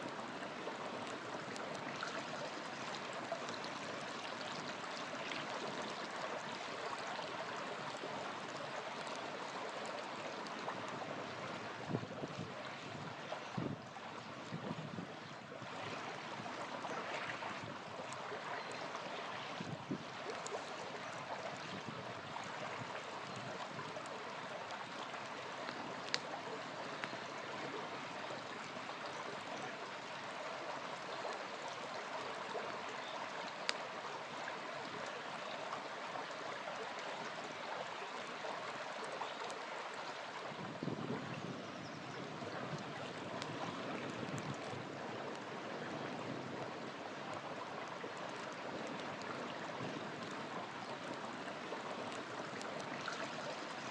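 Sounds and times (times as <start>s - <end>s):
river flowing: 0.0s - 53.9s
campfire crackling pops: 25.6s - 27.2s.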